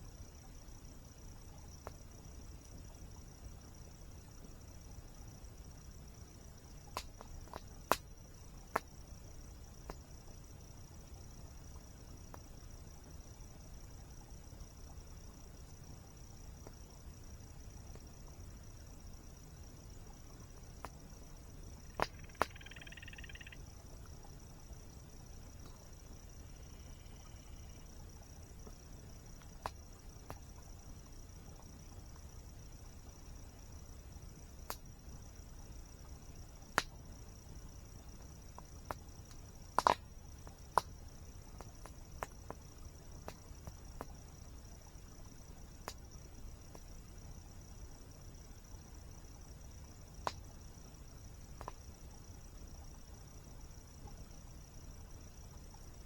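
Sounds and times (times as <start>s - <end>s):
insects buzzing: 0.0s - 56.0s
frog trilling: 21.9s - 23.6s
high-pitched insect drone: 22.1s - 23.6s, 26.5s - 27.8s
campfire crackling: 34.0s - 44.2s
campfire popping and cracking: 38.8s - 42.6s.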